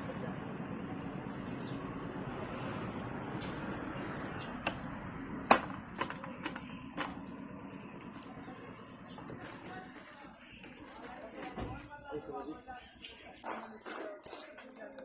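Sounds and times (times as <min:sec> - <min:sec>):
steady background noise: 0:00.0 - 0:15.0
small birds chirping: 0:01.1 - 0:02.0, 0:03.8 - 0:04.9, 0:06.1 - 0:13.8.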